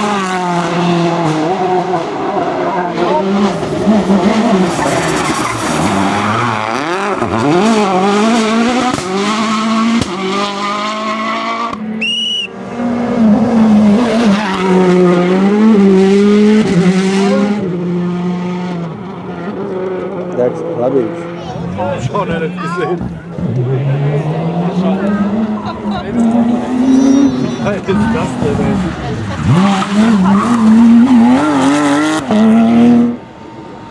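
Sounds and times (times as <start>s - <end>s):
rally car engine revving: 0.0s - 33.9s
tyres squealing: 2.5s - 8.9s, 21.1s - 32.2s.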